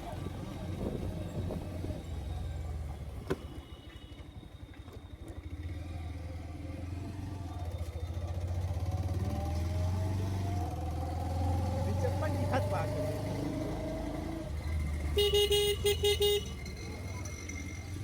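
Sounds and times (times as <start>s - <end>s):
vehicle engine pulling away: 5.4s - 15.2s.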